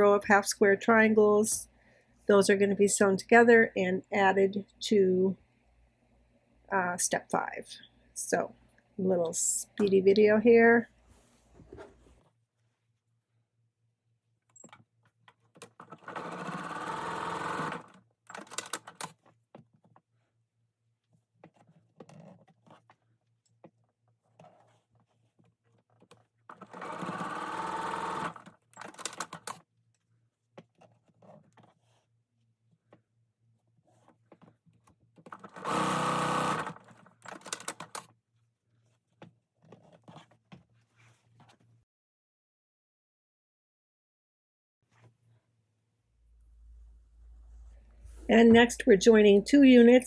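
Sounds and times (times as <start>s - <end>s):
sewing machine stitching: 15.6s - 19.2s, 26.5s - 29.6s, 35.2s - 38.1s.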